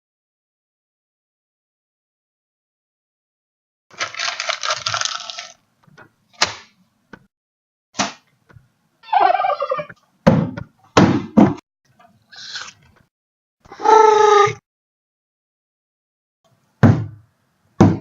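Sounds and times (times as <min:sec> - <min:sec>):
knocks and heavy thuds: 0:10.2 - 0:11.6, 0:17.8 - 0:18.0.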